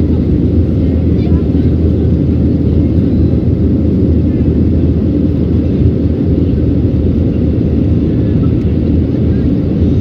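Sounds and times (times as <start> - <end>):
jet engine cabin roar: 0.0 - 10.0.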